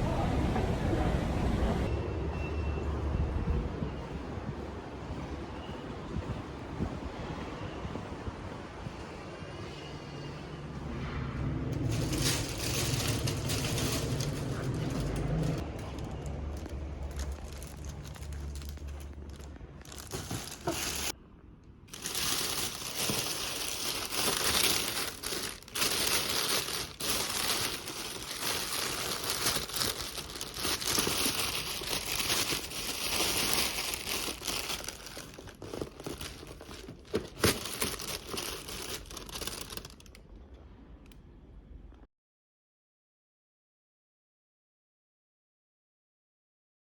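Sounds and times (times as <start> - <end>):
crinkling and crackling with clicks: 11.7 - 41.2.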